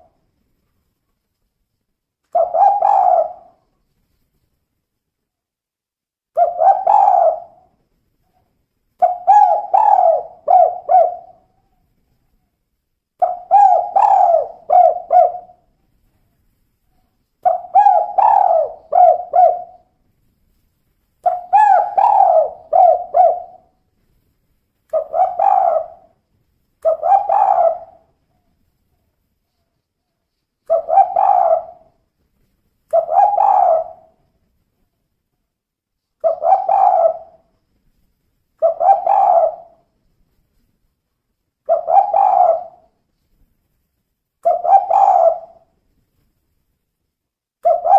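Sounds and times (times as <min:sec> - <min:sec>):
dove cooing: 0:02.4 - 0:03.6, 0:06.4 - 0:07.7, 0:09.0 - 0:11.6, 0:13.2 - 0:15.7, 0:17.4 - 0:19.9, 0:21.2 - 0:23.7, 0:24.9 - 0:26.2, 0:26.8 - 0:28.4, 0:30.7 - 0:32.0, 0:32.9 - 0:34.2, 0:36.2 - 0:37.5, 0:38.6 - 0:39.8, 0:41.7 - 0:42.9, 0:44.4 - 0:45.7, 0:47.6 - 0:47.9.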